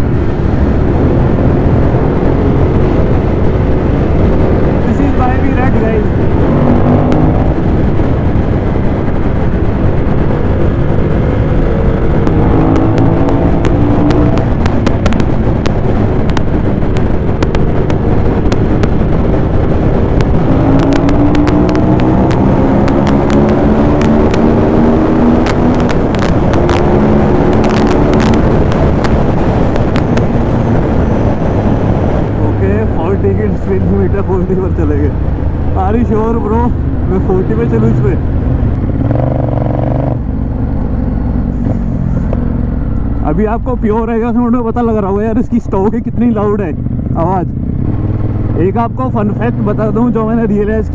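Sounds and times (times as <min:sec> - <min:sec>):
motorcycle engine running: 0:00.0 - 0:50.8
wind rushing over microphone: 0:00.0 - 0:50.9
sharp clicks: 0:12.2 - 0:24.6, 0:25.4 - 0:30.4
sharp ticks: 0:12.2 - 0:24.6, 0:25.4 - 0:30.4.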